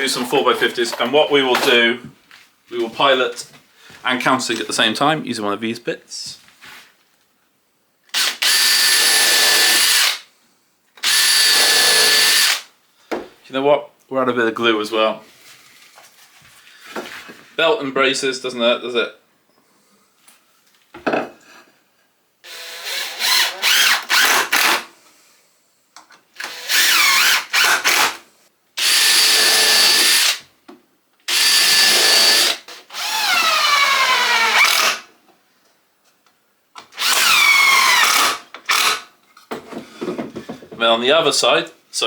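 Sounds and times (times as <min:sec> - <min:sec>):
power drill boring into wood: 0:08.1 - 0:10.2, 0:11.0 - 0:12.7, 0:22.4 - 0:24.9, 0:26.4 - 0:28.2, 0:28.8 - 0:30.4, 0:31.3 - 0:35.1, 0:37.0 - 0:39.1.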